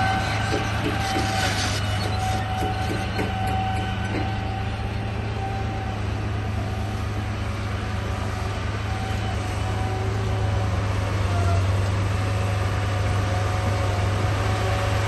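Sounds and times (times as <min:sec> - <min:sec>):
knocks: 0:00.5 - 0:04.3.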